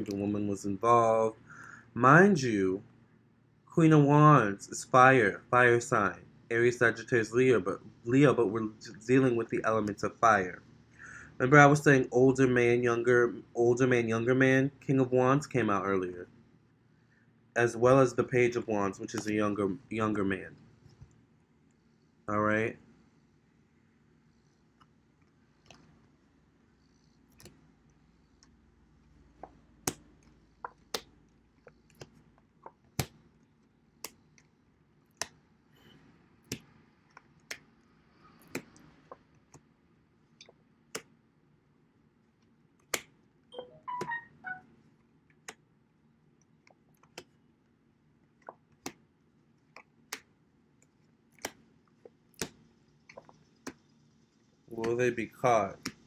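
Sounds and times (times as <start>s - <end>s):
brief warbling sound: 43.6s - 44.6s.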